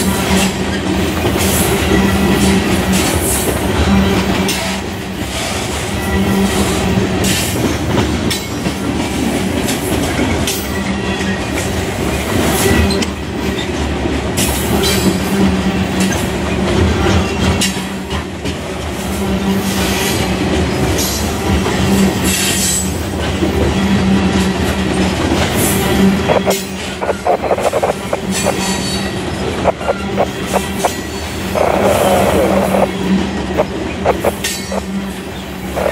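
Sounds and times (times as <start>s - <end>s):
steel wheels rumbling on rail: 0.0s - 35.9s
low drone: 29.3s - 34.9s.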